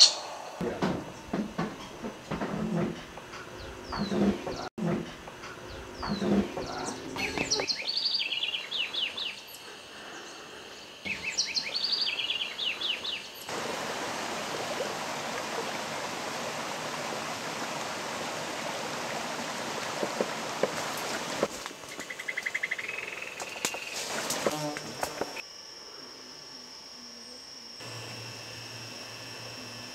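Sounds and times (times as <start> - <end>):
flowing water rushing: 13.5 - 21.5.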